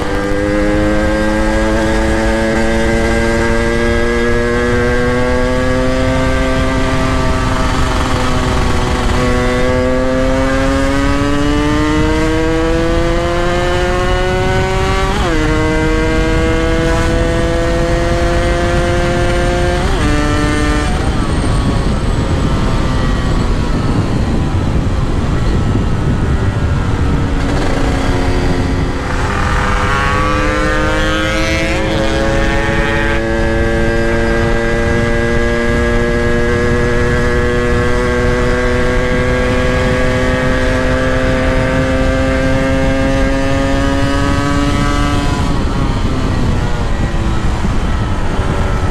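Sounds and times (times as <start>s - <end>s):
steady rushing noise: 0.0s - 48.9s
two-stroke motorcycle engine accelerating: 0.0s - 48.9s.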